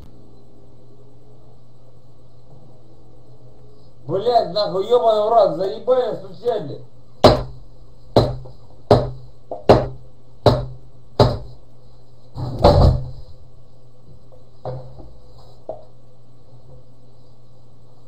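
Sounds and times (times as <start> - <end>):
heavy knocking on a wall: 7.2 - 11.6, 12.4 - 13.2.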